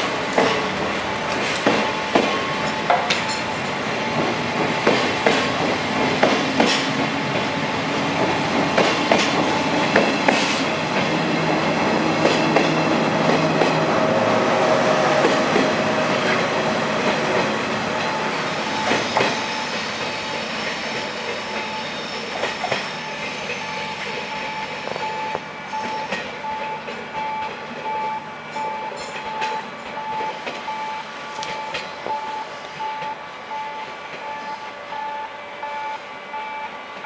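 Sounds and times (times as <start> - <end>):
train wheels clacking over rail joints: 0.0 - 14.0, 14.6 - 30.8
faint wheel squeal: 18.5 - 26.2.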